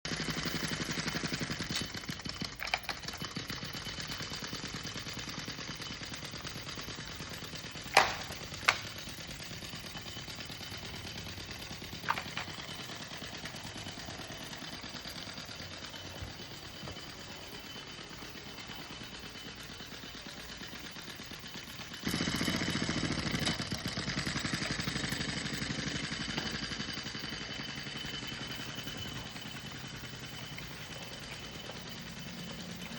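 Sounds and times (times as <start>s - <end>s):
model steam engine chuffing: 0.1s - 32.9s
sharp clicks: 7.8s - 9.2s.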